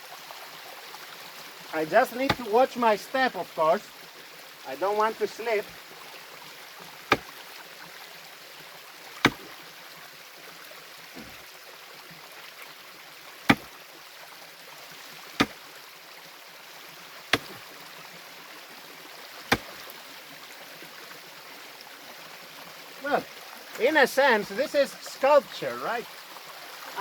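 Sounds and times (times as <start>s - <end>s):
stream rushing: 1.2s - 12.8s, 14.6s - 15.8s, 17.2s - 17.9s, 18.7s - 20.3s, 22.8s - 27.0s
hand tool striking rock: 2.1s - 2.5s, 7.1s - 7.3s, 9.2s - 9.6s, 11.2s - 11.4s, 13.5s - 13.7s, 15.4s - 15.6s, 17.3s - 17.7s, 19.5s - 19.9s.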